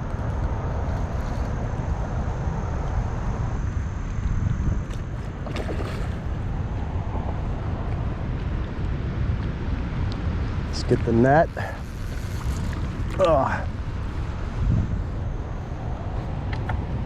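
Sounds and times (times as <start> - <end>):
wind buffeting the microphone: 0.0 - 17.0.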